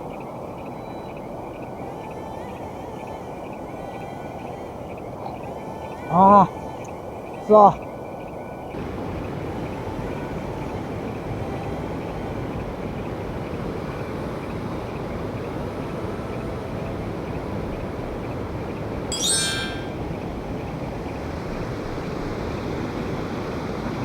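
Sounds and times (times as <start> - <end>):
stream water rushing: 8.8 - 18.0
high-pitched call: 19.1 - 20.2.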